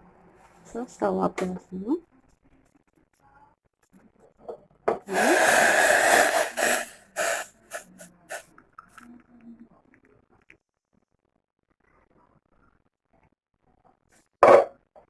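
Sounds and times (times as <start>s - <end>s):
tea pouring into cup: 5.1s - 8.4s.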